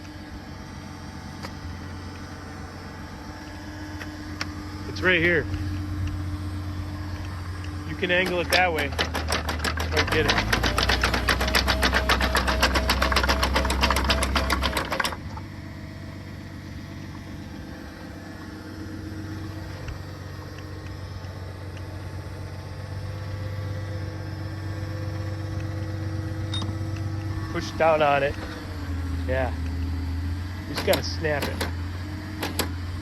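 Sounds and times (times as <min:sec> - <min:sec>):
auger machine chattering: 0:04.8 - 0:15.6, 0:30.6 - 0:31.8.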